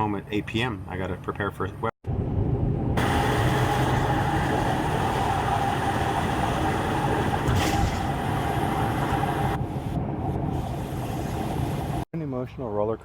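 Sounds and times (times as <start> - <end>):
vehicle road noise: 2.1 - 12.1.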